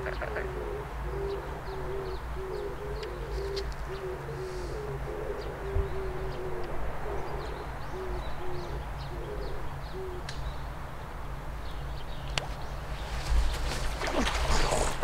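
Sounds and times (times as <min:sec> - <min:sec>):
bird hooting: 0:00.0 - 0:10.3
small birds chirping: 0:00.0 - 0:15.0.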